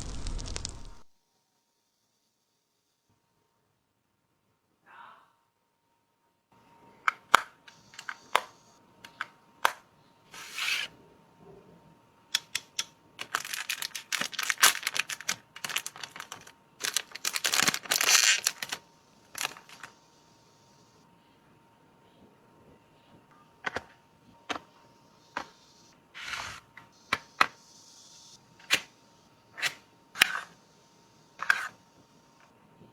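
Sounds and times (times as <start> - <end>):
wrapping crinkling and tearing: 0.0 - 1.1, 13.2 - 19.9
packaging clicks and taps: 7.1 - 9.8, 12.3 - 18.8, 19.4 - 20.0.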